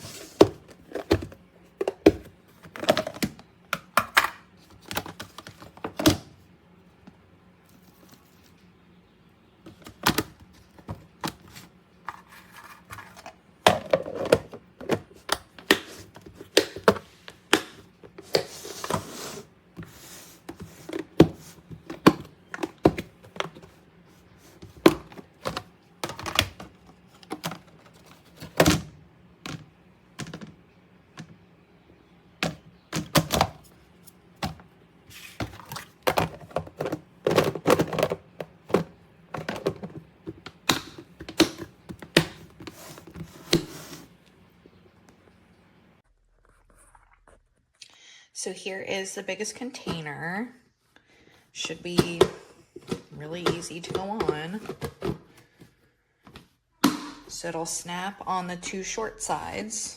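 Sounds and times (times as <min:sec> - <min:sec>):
plastic containers clicking: 0:00.4 - 0:06.3, 0:09.7 - 0:19.1, 0:20.5 - 0:23.8, 0:24.6 - 0:28.9, 0:29.5 - 0:31.4, 0:35.4 - 0:43.6, 0:51.6 - 0:55.6.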